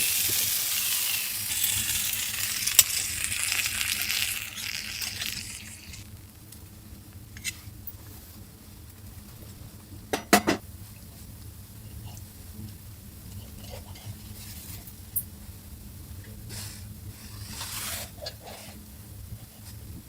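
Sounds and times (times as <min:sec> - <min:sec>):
food sizzling in a pan: 0:00.0 - 0:06.3.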